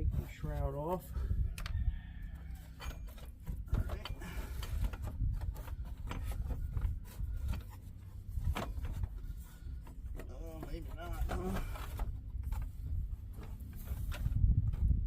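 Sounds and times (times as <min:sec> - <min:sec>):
tools clicking and scraping: 0:02.4 - 0:07.8.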